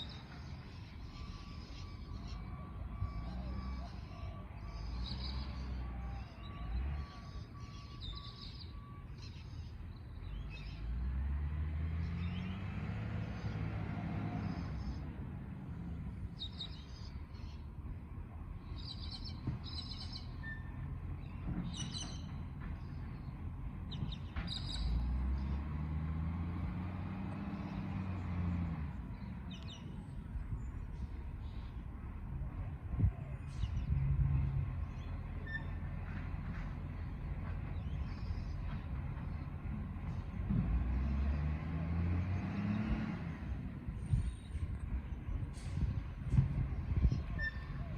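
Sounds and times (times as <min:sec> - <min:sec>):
birds chirping: 0:00.0 - 0:11.1, 0:15.8 - 0:17.8, 0:18.6 - 0:32.0, 0:36.7 - 0:41.2
garbage truck engine revving: 0:24.7 - 0:29.1, 0:39.0 - 0:43.7.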